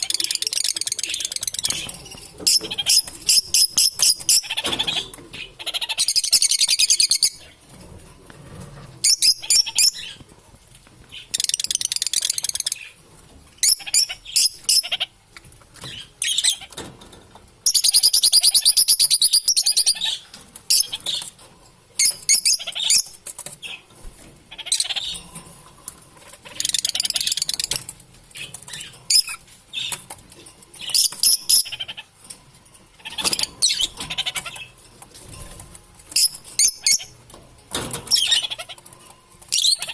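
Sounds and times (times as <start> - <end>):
lovebirds chattering: 0.0 - 7.6, 9.0 - 10.3, 13.6 - 16.8, 17.6 - 21.4, 22.0 - 23.9, 24.5 - 25.4, 26.2 - 32.2, 33.0 - 34.8, 36.1 - 37.2, 38.1 - 39.9.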